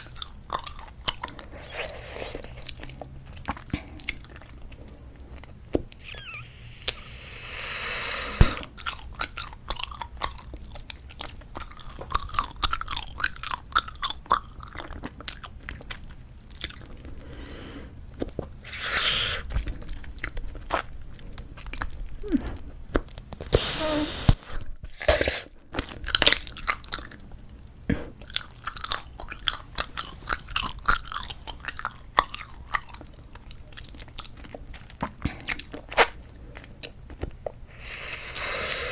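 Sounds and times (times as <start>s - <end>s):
chewing gum clicks and smacks: 0.0s - 1.6s, 8.8s - 17.1s, 25.8s - 37.6s
breathy rush of air: 6.0s - 8.6s.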